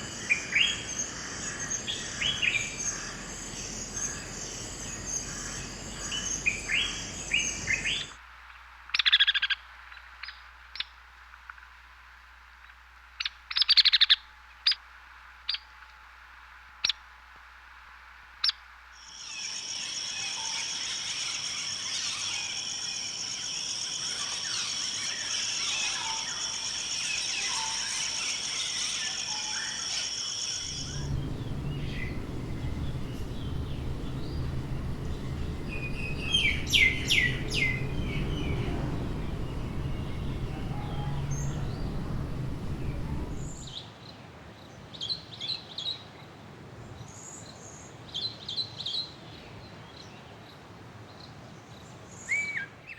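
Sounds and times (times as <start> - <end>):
chorus of chirping birds: 30.6 - 43.7
sharp bird calls: 30.7 - 43.7.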